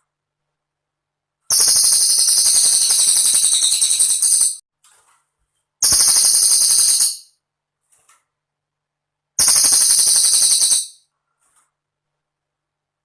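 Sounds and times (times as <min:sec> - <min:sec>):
bird high-pitched rapid trills: 0:01.5 - 0:04.6, 0:05.8 - 0:07.4, 0:09.4 - 0:11.0.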